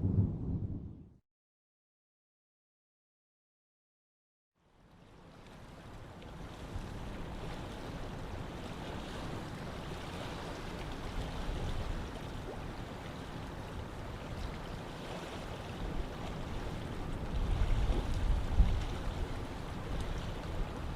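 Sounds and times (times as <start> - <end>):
low rumble: 0.0 - 1.2.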